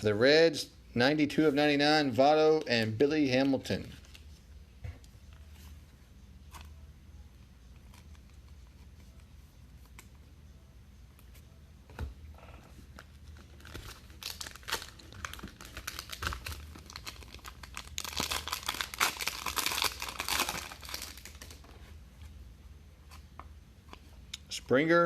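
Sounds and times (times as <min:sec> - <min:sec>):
foil wrapper crinkling and tearing: 0:13.2 - 0:21.6.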